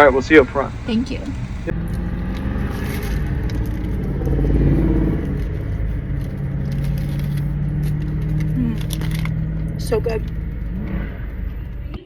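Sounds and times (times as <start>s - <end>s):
car engine hum: 0.0s - 12.0s
road rumble inside car: 0.0s - 12.0s.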